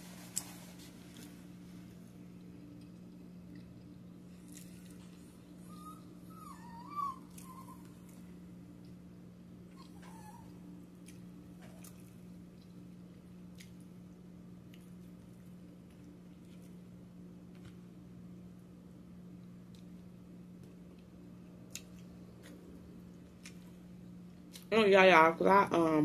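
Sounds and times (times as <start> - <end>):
steady low hum: 0.0 - 26.0
pet high-pitched cries: 5.6 - 8.0, 9.8 - 10.6.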